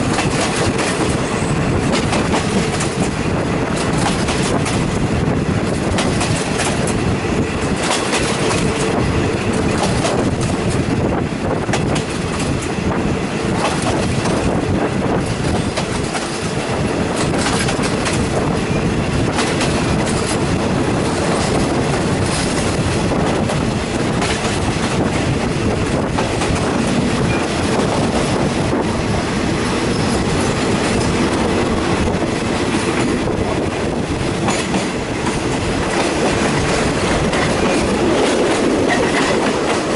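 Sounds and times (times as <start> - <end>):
train carriage rumbling: 0.0 - 39.9
wheels clicking over rail joints: 1.8 - 5.0, 5.6 - 11.0, 15.2 - 18.5, 19.2 - 28.7, 29.8 - 39.9.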